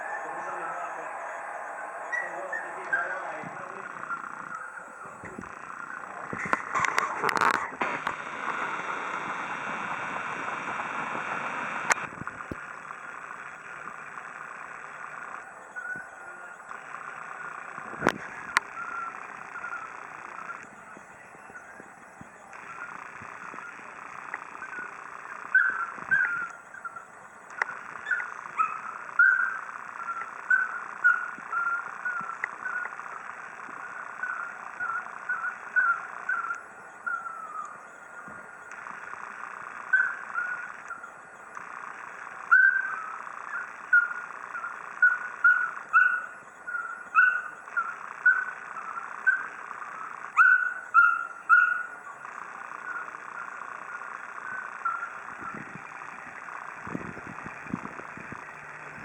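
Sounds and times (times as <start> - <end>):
dog whining: 45.0 - 49.5, 50.4 - 52.0.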